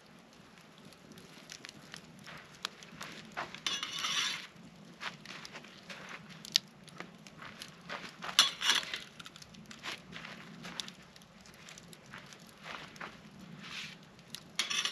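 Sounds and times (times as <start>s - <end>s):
camp cookware clinking: 3.5s - 4.5s, 8.3s - 9.4s, 14.3s - 14.9s
utensil scrape: 3.6s - 4.5s, 8.4s - 9.1s, 14.6s - 14.9s.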